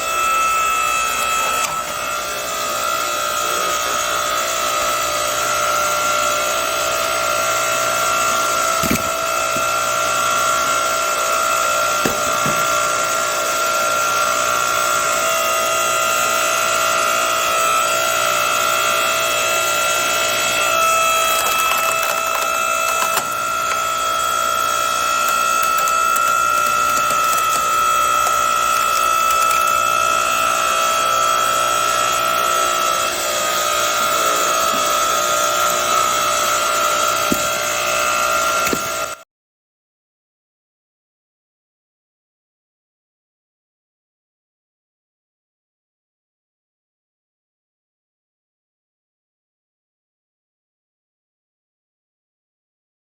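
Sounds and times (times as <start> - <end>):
log splitter motor whining: 0.0 - 39.2
wood cracking and splintering: 8.7 - 9.8, 20.8 - 30.2.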